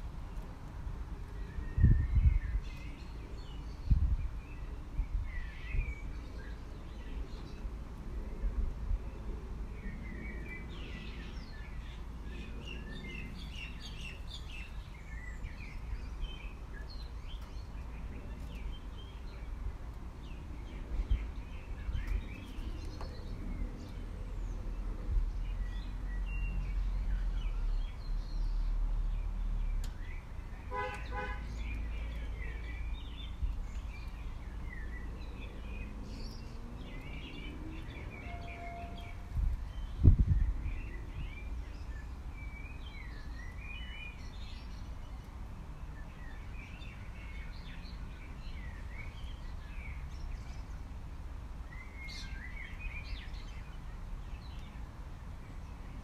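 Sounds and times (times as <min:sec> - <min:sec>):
small birds chirping and trilling: 0:00.0 - 0:56.0.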